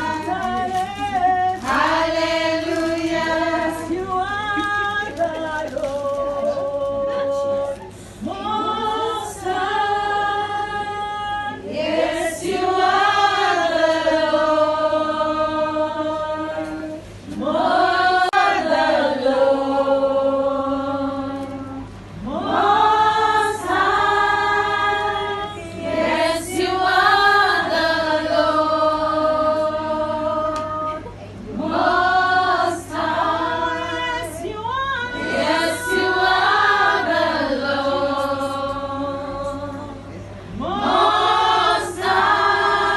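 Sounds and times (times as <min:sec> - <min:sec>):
choir singing: 0:08.4 - 0:30.6, 0:31.6 - 0:40.0, 0:40.6 - 0:42.9.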